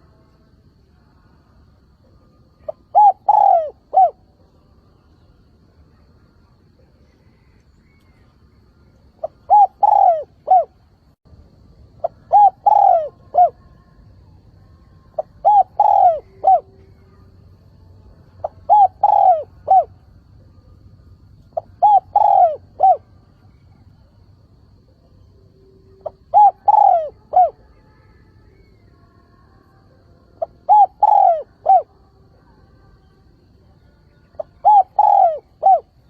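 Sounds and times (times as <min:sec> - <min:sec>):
dove cooing: 0:02.6 - 0:04.3, 0:09.2 - 0:10.8, 0:12.0 - 0:13.7, 0:15.1 - 0:17.3, 0:18.4 - 0:20.1, 0:21.5 - 0:23.9, 0:26.0 - 0:27.8, 0:30.4 - 0:32.0, 0:34.4 - 0:36.0.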